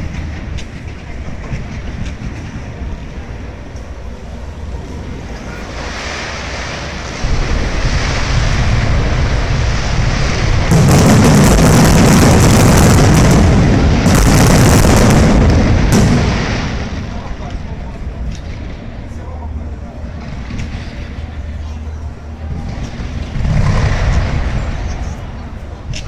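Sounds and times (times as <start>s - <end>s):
fireworks crackling: 5.1s - 21.6s, 22.2s - 26.0s
fireworks bursting: 5.7s - 19.2s, 22.5s - 26.0s.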